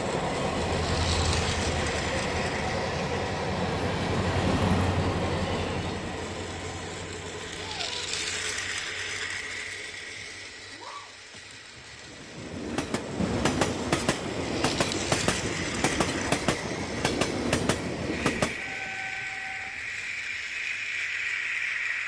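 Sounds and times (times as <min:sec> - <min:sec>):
toy train rattling on track: 0:06.2 - 0:22.0
high-pitched whine: 0:18.5 - 0:22.0.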